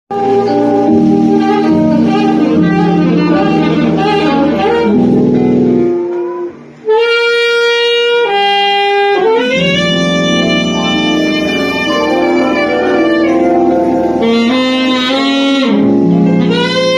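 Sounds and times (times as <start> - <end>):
live band playing: 0.1 - 16.9
saxophone long held notes: 0.1 - 16.9.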